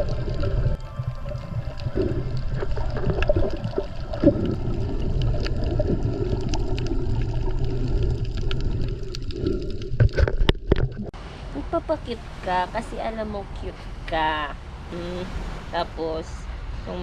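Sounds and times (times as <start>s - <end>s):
small underwater clicks: 0.0s - 11.1s
bubbling: 0.0s - 11.2s
muffled underwater rumble: 0.0s - 13.0s.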